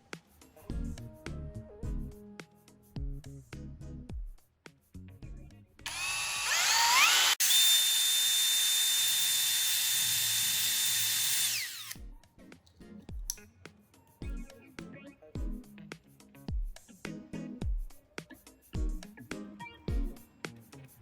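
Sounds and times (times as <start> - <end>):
small electric motor whining: 5.9 - 12.0.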